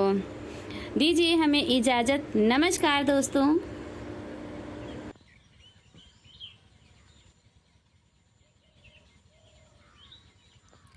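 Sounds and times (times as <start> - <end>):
steady low hum: 0.0 - 10.8
distant bird chirps: 4.7 - 10.9.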